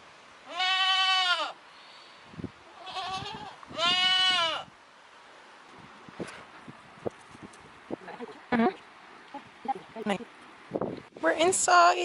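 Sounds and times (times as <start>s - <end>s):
young livestock bleating: 0.4s - 1.6s, 2.6s - 4.7s.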